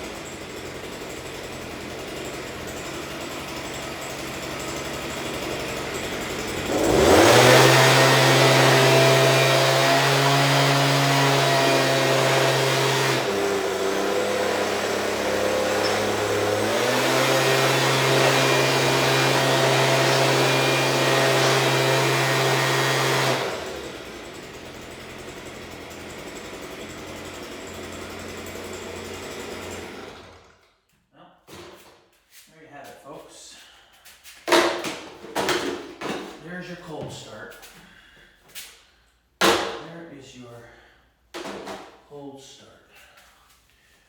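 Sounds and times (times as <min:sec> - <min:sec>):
leaf blower engine running: 0:00.0 - 0:30.6.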